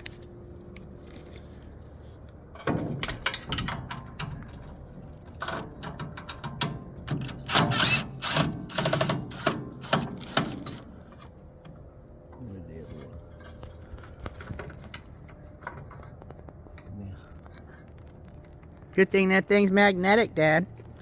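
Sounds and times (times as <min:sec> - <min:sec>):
hand tools clicking and scraping on metal: 0:00.0 - 0:11.8.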